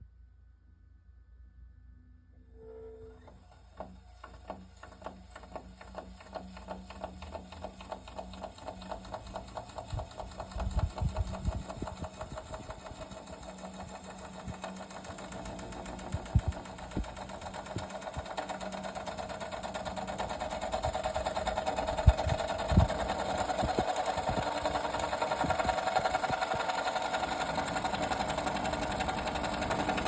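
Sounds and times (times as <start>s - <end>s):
ticks speeding into clatter: 3.8s - 30.0s
dehumidifier rattling: 7.0s - 30.0s.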